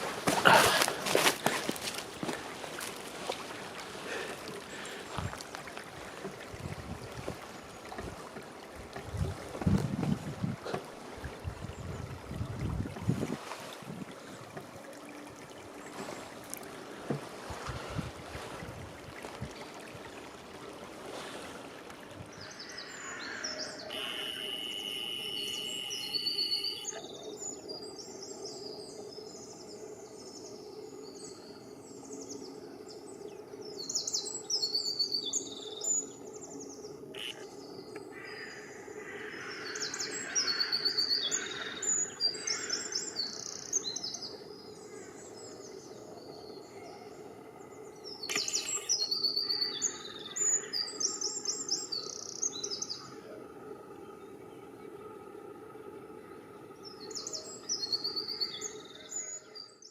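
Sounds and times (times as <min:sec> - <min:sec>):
songbirds chirping and singing: 0:22.3 - 0:55.0, 0:56.3 - 0:59.9.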